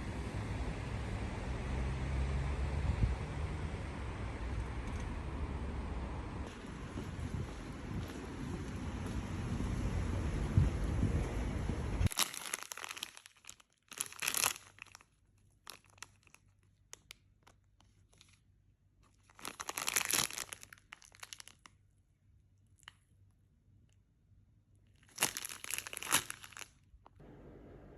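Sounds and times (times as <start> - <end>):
wind rumble on microphone: 2.5 - 12.1
packaging crinkling and tearing: 12.1 - 18.4, 19.0 - 21.9, 25.0 - 26.8.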